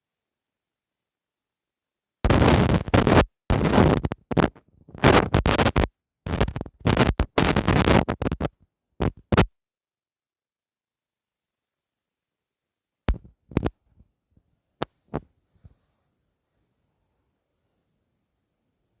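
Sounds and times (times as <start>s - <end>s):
scratching against microphone: 2.3s - 9.5s, 13.1s - 13.8s.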